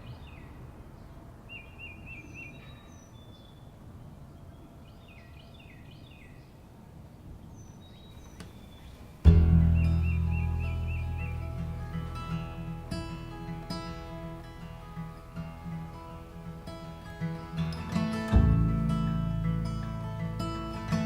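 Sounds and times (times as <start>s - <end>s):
low steady background rumble: 0.0s - 21.0s
songbirds singing: 0.0s - 21.0s
acoustic guitar: 9.1s - 21.0s.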